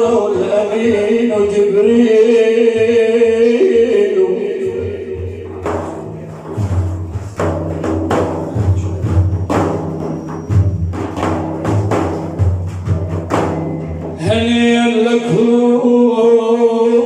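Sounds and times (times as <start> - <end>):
frame drums playing: 4.6 - 15.5.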